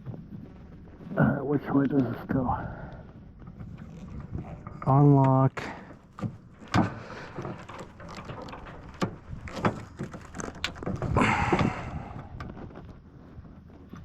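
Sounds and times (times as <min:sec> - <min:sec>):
rattling metal scrape: 0:03.6 - 0:12.5.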